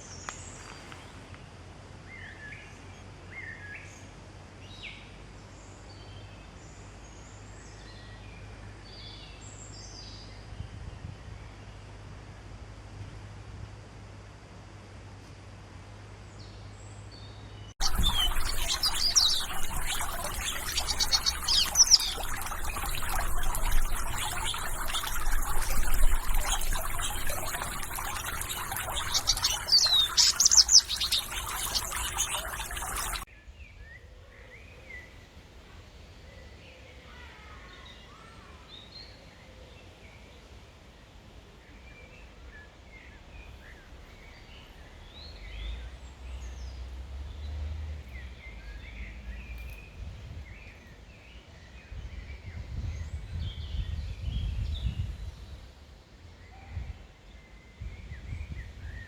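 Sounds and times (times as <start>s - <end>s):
small birds chirping: 17.8s - 33.3s
steady hiss: 17.8s - 33.3s.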